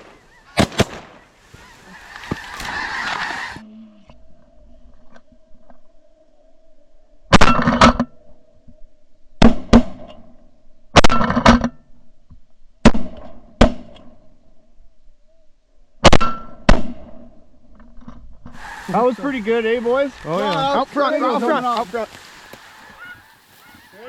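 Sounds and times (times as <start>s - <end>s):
shotgun blasts: 0.0s - 1.3s.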